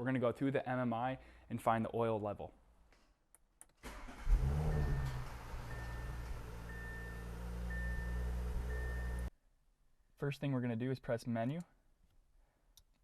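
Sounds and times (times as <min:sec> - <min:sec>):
car engine starting and idling: 0:03.8 - 0:09.3
short chime beeps: 0:04.6 - 0:09.3.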